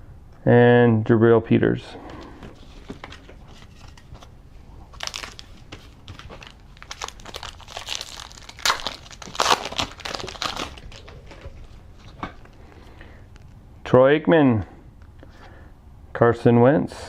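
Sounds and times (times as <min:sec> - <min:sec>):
card pack wrapper tearing and crinkling: 0:02.6 - 0:12.6.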